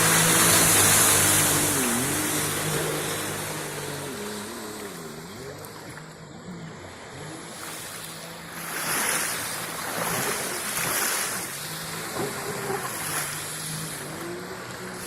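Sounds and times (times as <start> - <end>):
jet ski engine droning: 0.0 - 15.0
rushing wind and water: 0.0 - 15.0.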